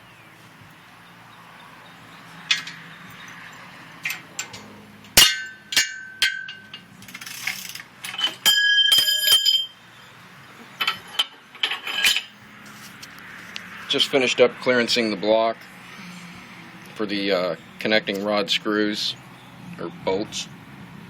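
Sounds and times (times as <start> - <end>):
rattling metal clicks: 2.4 - 9.7
metal tools clinking and clanking: 2.4 - 9.8, 10.7 - 13.0.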